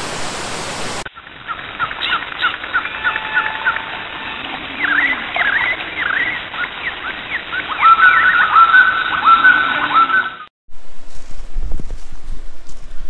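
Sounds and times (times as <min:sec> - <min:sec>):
waterfall rushing: 0:00.0 - 0:10.3
birds calling: 0:01.0 - 0:10.5
loud whistled bird calls: 0:01.5 - 0:10.5.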